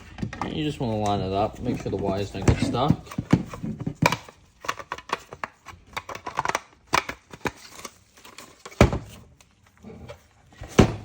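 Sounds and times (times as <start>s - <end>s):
plastic parts clicking and knocking: 0.0s - 11.0s.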